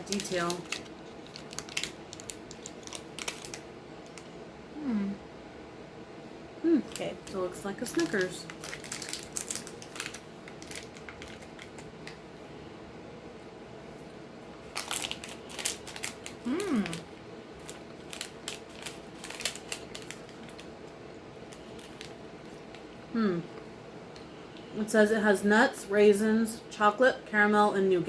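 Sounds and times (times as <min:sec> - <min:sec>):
wrapper crinkling: 0:00.0 - 0:04.2, 0:06.9 - 0:12.2, 0:14.6 - 0:22.9
person humming: 0:04.8 - 0:05.2, 0:06.6 - 0:07.0, 0:16.4 - 0:17.1, 0:23.1 - 0:23.5.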